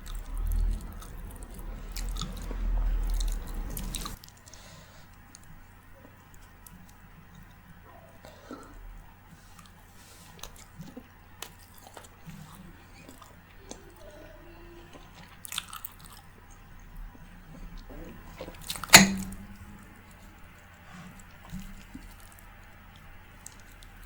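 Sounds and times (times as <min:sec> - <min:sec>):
chewing and mouth sounds: 0:00.0 - 0:24.0.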